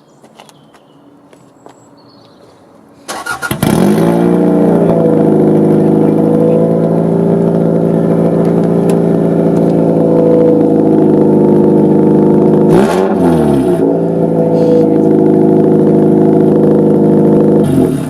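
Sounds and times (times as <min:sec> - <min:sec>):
car engine cranking: 0:03.1 - 0:13.8
loud raw car engine idle: 0:14.0 - 0:18.0.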